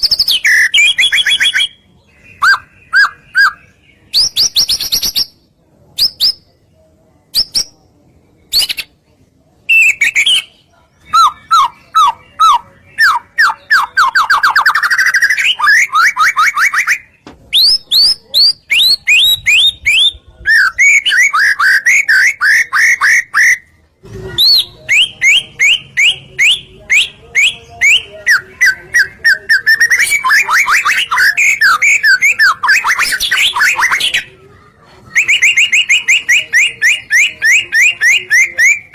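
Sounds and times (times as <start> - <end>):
bird singing whistled notes: 9.7 - 23.6, 24.4 - 34.2, 35.1 - 38.9.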